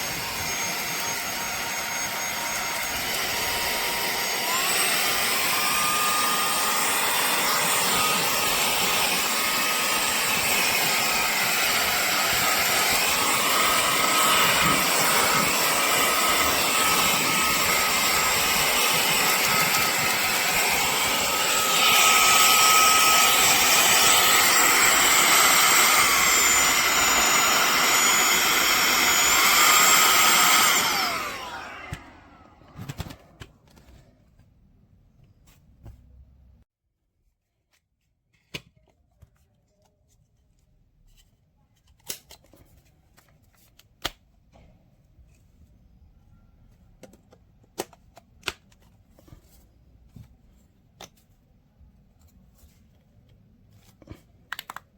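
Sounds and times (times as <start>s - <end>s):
handheld vacuum motor whine: 0.0s - 33.6s.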